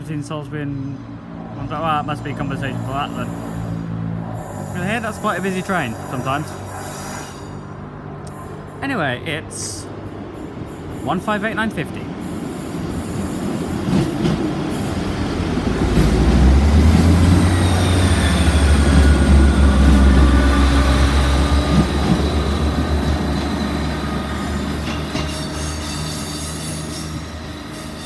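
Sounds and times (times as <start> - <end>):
diesel train engines droning: 0.0 - 28.0
high-pitched wheel squeal: 2.6 - 8.6, 17.0 - 28.0.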